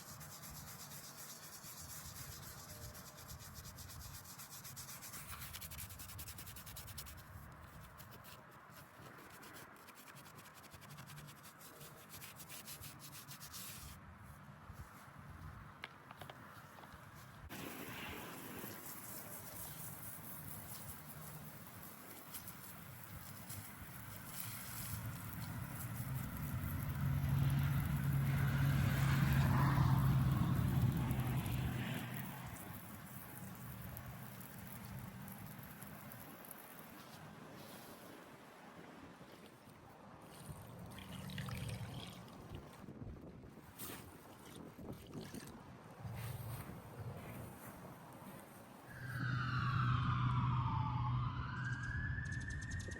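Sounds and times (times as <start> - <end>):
scrubbing on stone: 0.0 - 14.0
vehicle engine hum: 23.9 - 36.6.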